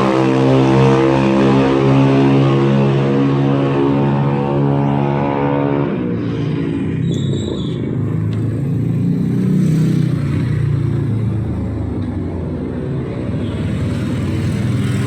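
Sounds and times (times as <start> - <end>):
cars and motorcycles passing: 0.0 - 15.0
vehicle engine humming: 0.0 - 15.0
high-pitched squeal: 3.7 - 8.2.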